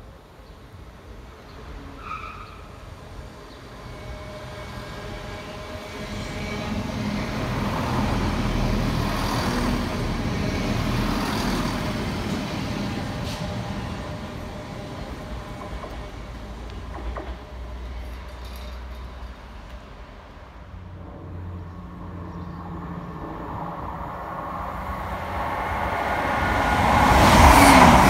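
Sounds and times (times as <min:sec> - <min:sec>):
diesel train engine: 0:02.7 - 0:28.0
train wheels on rails: 0:03.2 - 0:20.6, 0:24.5 - 0:28.0.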